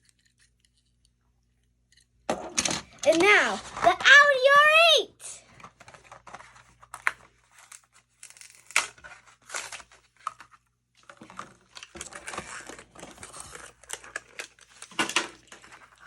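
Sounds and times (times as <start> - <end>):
plastic and cardboard crinkling: 2.3 - 4.3, 5.4 - 16.0.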